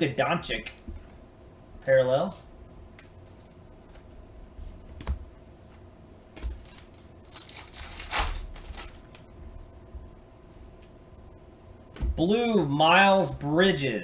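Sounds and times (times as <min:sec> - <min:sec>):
cards rustling: 0:06.4 - 0:09.2.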